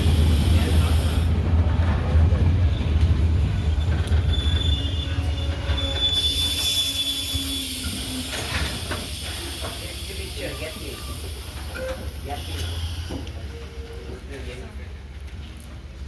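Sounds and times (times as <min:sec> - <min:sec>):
diesel train rumbling past: 0:00.0 - 0:16.0
high wheel squeal: 0:03.6 - 0:14.2.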